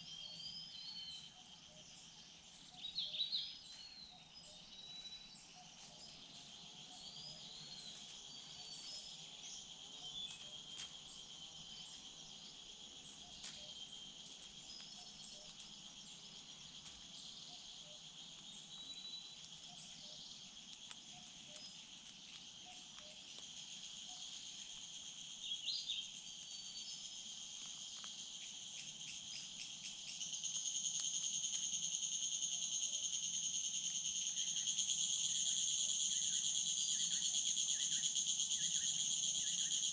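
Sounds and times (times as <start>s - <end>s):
faint bird chirps: 0.0s - 12.0s
insects trilling: 0.0s - 39.9s.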